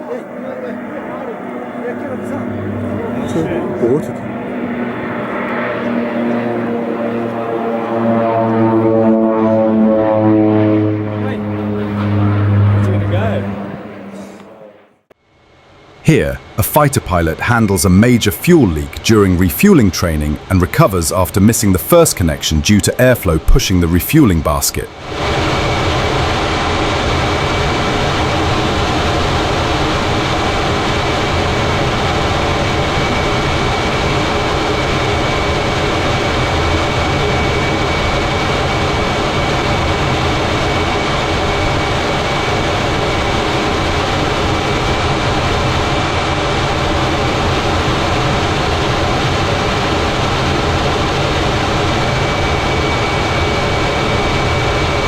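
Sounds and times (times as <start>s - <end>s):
high steady whine: 0.0s - 55.0s
jet engine rumble: 0.0s - 55.0s.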